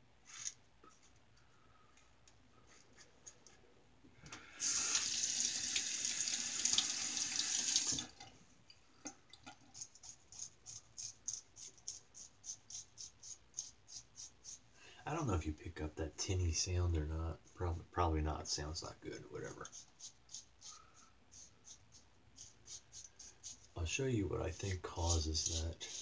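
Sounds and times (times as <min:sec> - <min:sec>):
faucet running: 0:04.6 - 0:08.2
razor scraping stubble: 0:24.7 - 0:26.0.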